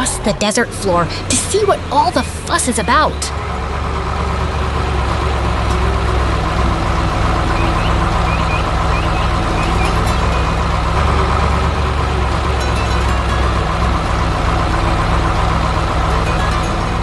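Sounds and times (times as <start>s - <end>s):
truck engine running: 0.0s - 17.0s
high rising chirps: 7.5s - 10.0s.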